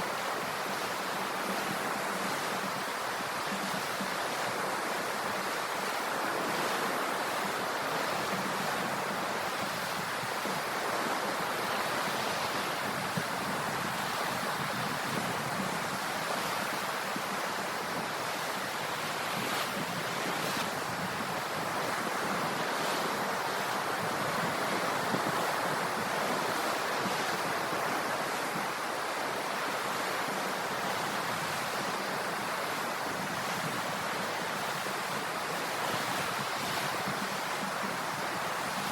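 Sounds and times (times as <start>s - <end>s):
waves washing on shore: 0.0s - 38.9s.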